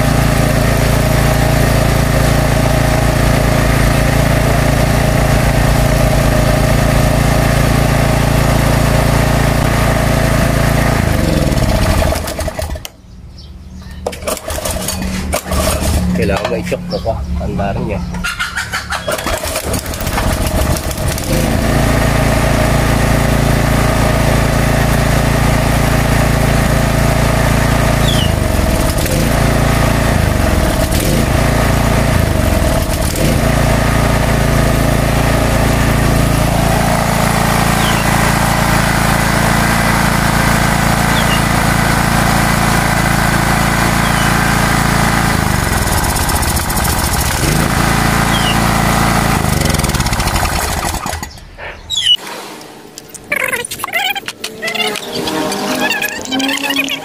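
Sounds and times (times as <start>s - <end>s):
small generator engine running: 0.0s - 52.2s.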